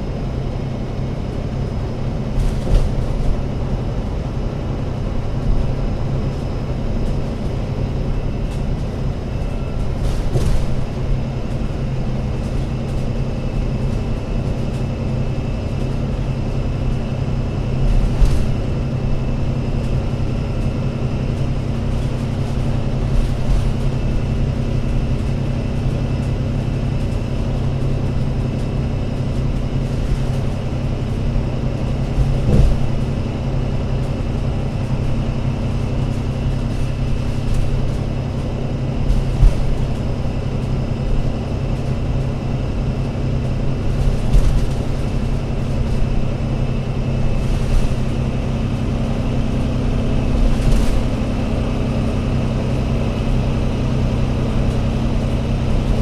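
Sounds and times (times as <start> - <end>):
bus diesel engine humming: 0.0 - 56.0.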